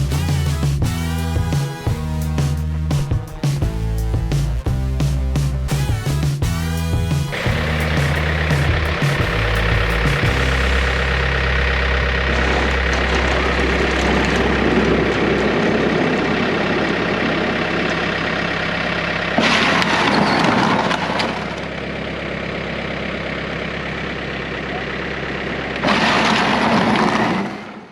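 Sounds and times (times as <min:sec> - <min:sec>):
diesel engine running: 0:00.0 - 0:27.5
loud harsh noise: 0:05.7 - 0:21.6.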